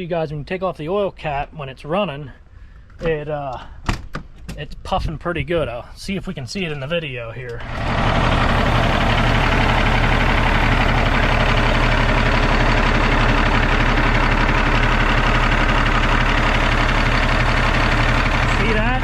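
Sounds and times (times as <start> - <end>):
diesel truck engine idling: 7.5 - 19.0.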